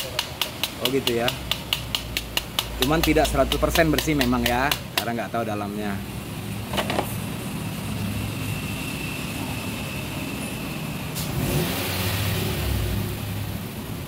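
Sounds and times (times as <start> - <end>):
sharp taps: 0.0 - 5.2.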